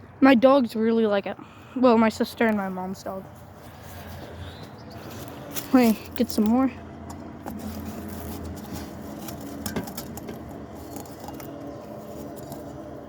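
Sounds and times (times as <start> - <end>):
steady low hum: 1.4 - 13.0
ice crunching: 5.0 - 13.0.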